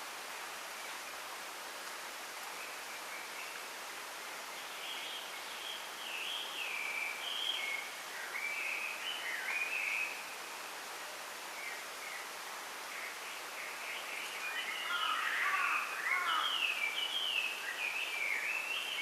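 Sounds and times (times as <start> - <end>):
wind rustling in bamboo: 0.0 - 19.0
songbird singing whistled notes: 4.7 - 10.2, 13.6 - 15.1.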